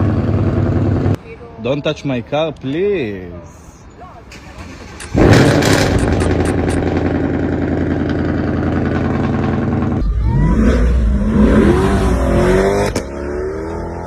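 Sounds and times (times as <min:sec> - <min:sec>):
car engine revving: 0:04.8 - 0:14.0.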